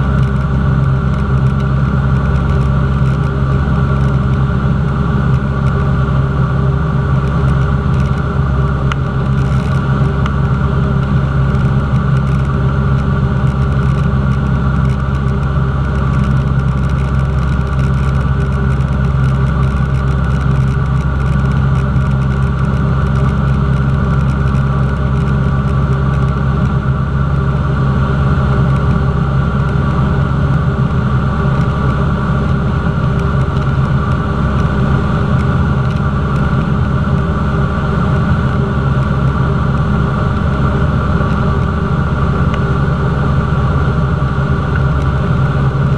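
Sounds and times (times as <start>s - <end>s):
light aircraft engine and propeller: 0.0s - 45.9s.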